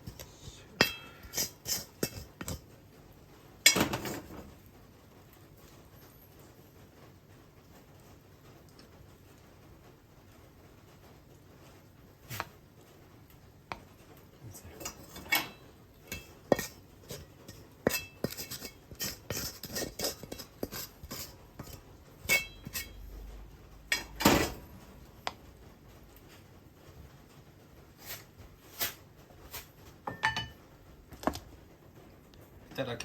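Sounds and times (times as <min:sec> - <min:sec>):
dishes and cutlery clinking: 0:00.0 - 0:02.6, 0:03.6 - 0:04.5, 0:14.5 - 0:23.1, 0:23.9 - 0:24.6, 0:30.0 - 0:30.6.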